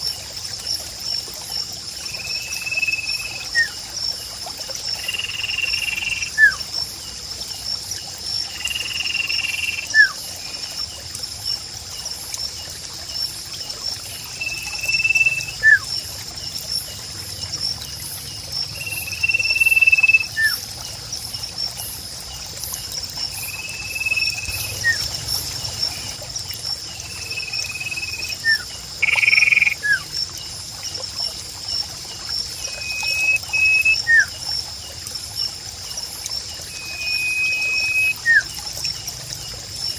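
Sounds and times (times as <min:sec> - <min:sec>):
high insect drone: 0:00.0 - 0:34.9
bird whistling calls: 0:14.4 - 0:15.9, 0:18.9 - 0:20.6, 0:23.5 - 0:25.1, 0:27.2 - 0:30.0, 0:32.7 - 0:34.3, 0:36.7 - 0:38.5.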